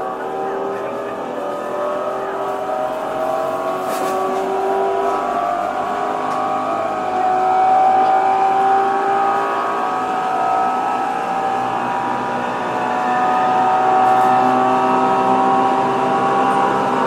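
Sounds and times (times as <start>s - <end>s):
electric train motors whining: 0.0s - 17.0s
rail and wheel noise: 0.0s - 17.0s.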